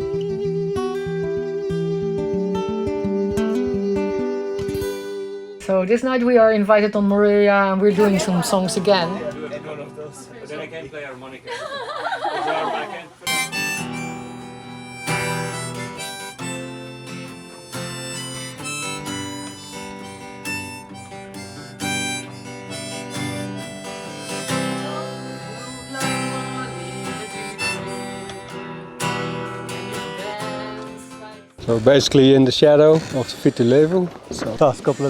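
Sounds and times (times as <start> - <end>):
harmonica playing: 0.0 - 5.6, 7.8 - 10.2, 13.2 - 31.7, 32.9 - 35.0
strummed acoustic guitar: 0.0 - 5.6, 7.9 - 11.4, 13.2 - 35.0.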